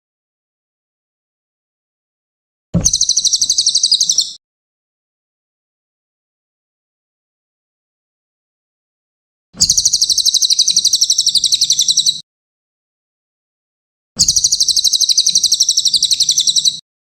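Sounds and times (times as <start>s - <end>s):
bird singing high rattling trill: 2.8s - 4.4s, 9.6s - 12.2s, 14.2s - 16.8s.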